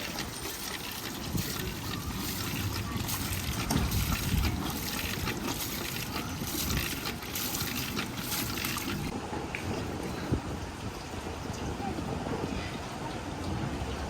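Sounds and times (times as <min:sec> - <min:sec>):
water running and splashing: 0:00.0 - 0:09.2.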